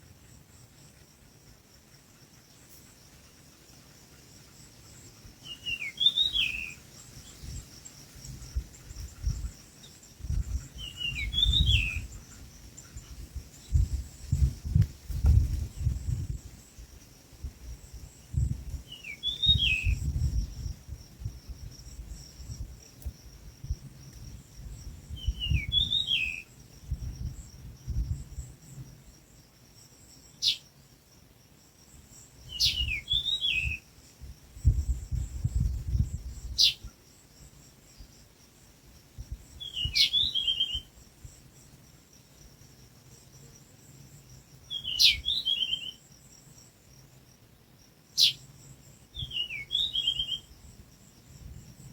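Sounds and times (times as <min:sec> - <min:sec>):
high insect drone: 0:00.0 - 0:51.9
bird chirping call: 0:05.4 - 0:07.1, 0:18.9 - 0:20.0, 0:30.4 - 0:30.6, 0:32.5 - 0:33.8, 0:36.6 - 0:36.8, 0:39.6 - 0:40.9, 0:44.7 - 0:46.0, 0:48.2 - 0:48.4, 0:49.2 - 0:50.5.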